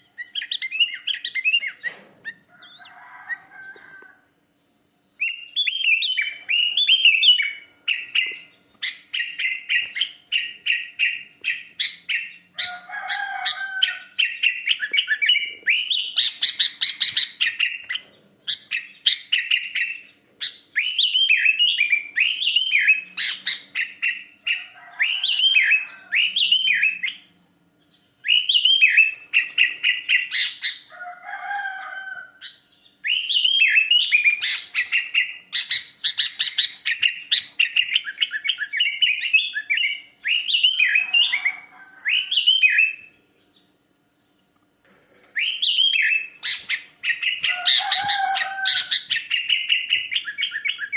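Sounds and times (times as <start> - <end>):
bird chirping song: 0.0 - 50.9
lower bird call: 28.2 - 43.2, 45.4 - 50.9.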